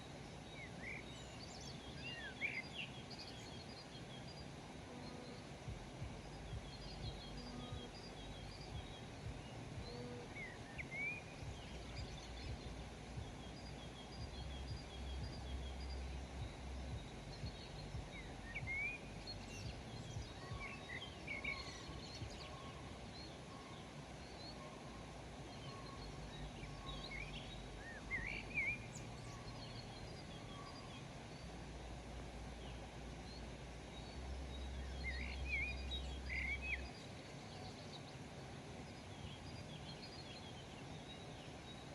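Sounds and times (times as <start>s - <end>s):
steady outdoor hiss: 0.0s - 41.9s
wild birds chirping: 0.0s - 41.9s
faint repeated bird note: 0.6s - 41.9s
low rumble: 5.6s - 20.6s.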